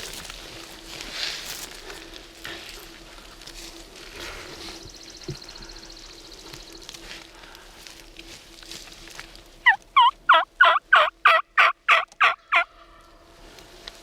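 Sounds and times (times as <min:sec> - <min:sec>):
turkey yelps: 0:09.6 - 0:13.0.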